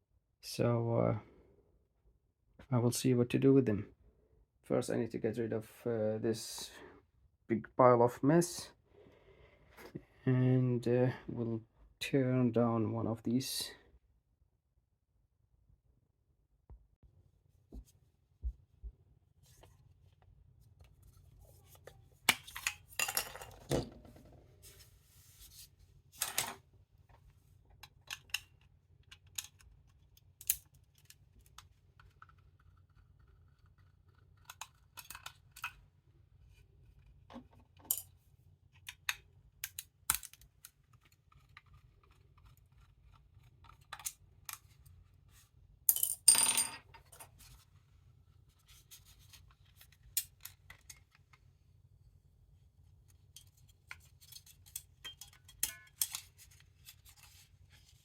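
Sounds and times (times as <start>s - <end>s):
plastic parts clicking and tapping: 27.7s - 35.8s, 38.7s - 44.8s, 53.4s - 57.3s.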